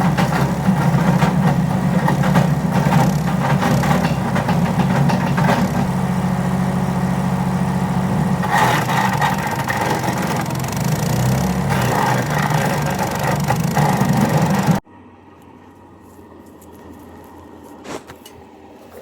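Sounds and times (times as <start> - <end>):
wood chipper engine running: 0.0 - 14.8.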